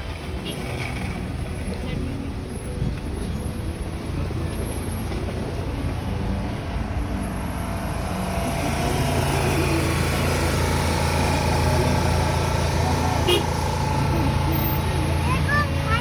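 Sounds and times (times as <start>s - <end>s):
road noise: 0.0s - 16.0s
car engine running: 3.4s - 16.0s.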